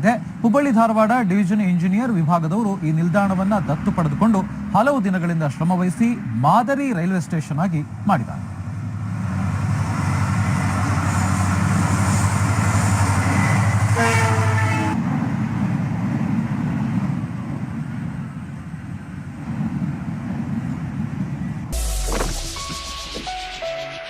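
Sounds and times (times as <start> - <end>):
train rumbling: 0.0 - 24.0
train horn: 13.4 - 15.0.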